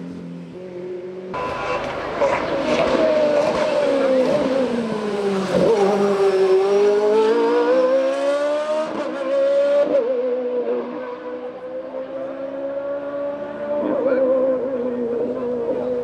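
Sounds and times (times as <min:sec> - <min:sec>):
race car engine at high revs: 0:00.0 - 0:16.0.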